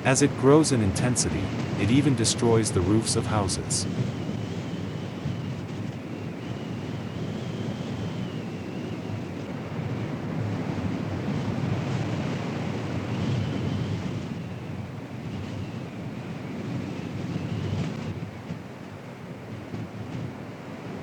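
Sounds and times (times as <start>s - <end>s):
faint high whine: 0.0s - 4.1s.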